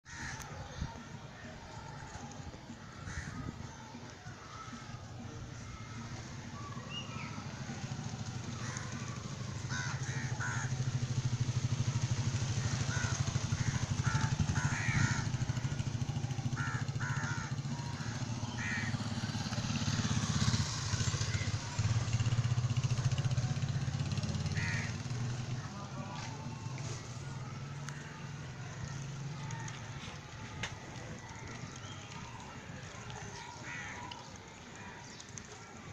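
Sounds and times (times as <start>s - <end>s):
crows cawing: 0.1s - 3.8s, 8.4s - 11.2s, 12.4s - 19.8s, 23.0s - 25.7s, 33.3s - 35.2s
engine droning: 0.1s - 35.9s.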